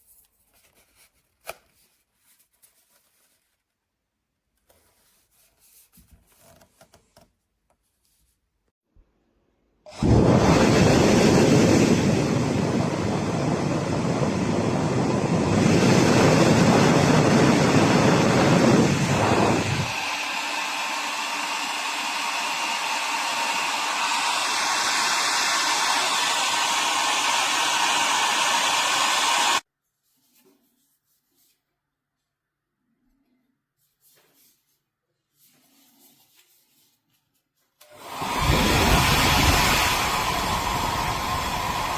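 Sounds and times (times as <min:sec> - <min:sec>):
hair dryer running: 0:09.9 - 0:29.6, 0:37.8 - 0:41.9.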